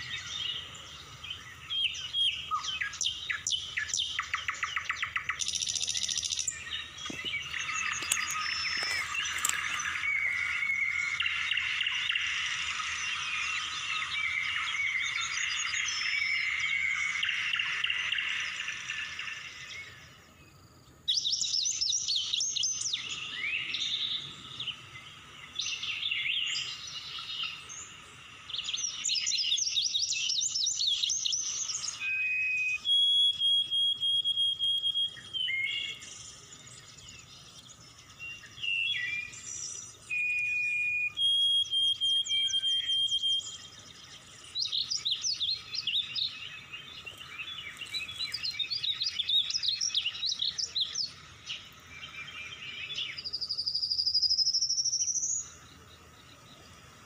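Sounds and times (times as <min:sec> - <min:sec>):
high bird chirping: 0:00.0 - 0:20.2, 0:21.1 - 0:56.8
animal chorus: 0:00.0 - 0:20.4
long whistled bird notes: 0:00.0 - 0:20.5, 0:21.1 - 0:56.8.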